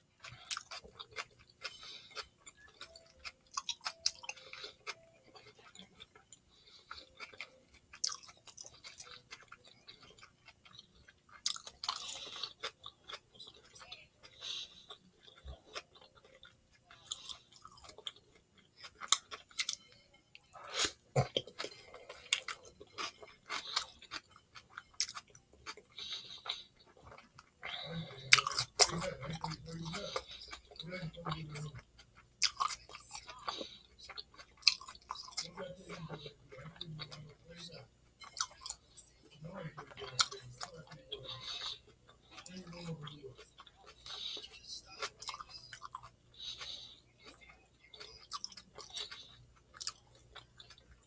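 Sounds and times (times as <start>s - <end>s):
wet chewing: 0.0s - 51.0s.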